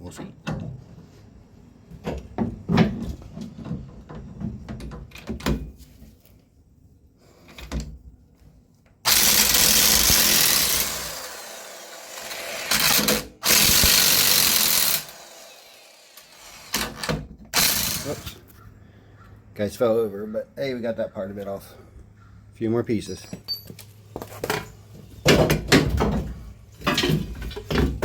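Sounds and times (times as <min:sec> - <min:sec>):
power tool running: 0:09.1 - 0:18.4.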